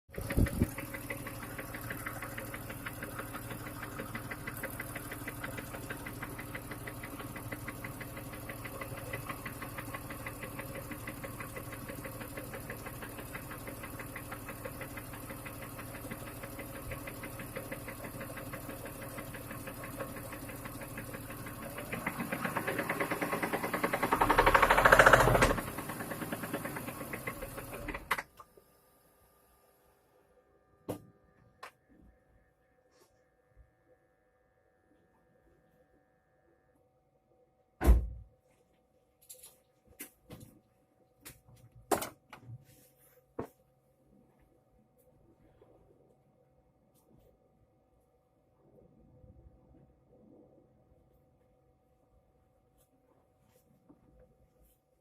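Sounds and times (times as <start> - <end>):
car engine idling with knocking: 0.1 - 28.1.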